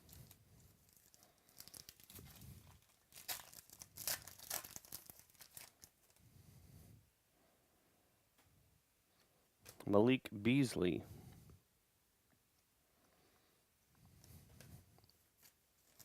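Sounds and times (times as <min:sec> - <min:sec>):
card pack wrapper tearing: 0:00.0 - 0:06.0, 0:15.4 - 0:16.0.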